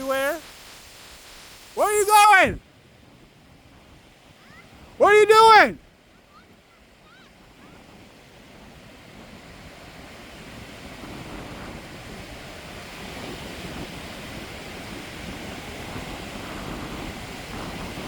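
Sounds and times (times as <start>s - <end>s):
surf rushing: 1.6s - 2.6s, 5.0s - 5.8s
wind on microphone: 7.4s - 18.0s.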